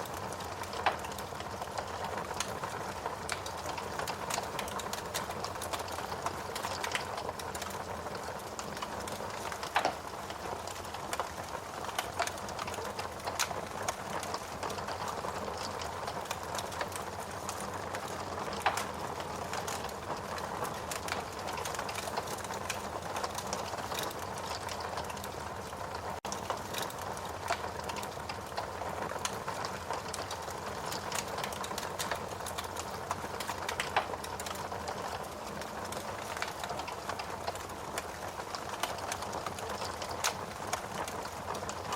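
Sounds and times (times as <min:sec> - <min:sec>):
fire hissing and crackling: 0:00.0 - 0:41.9
fire popping: 0:00.0 - 0:41.9.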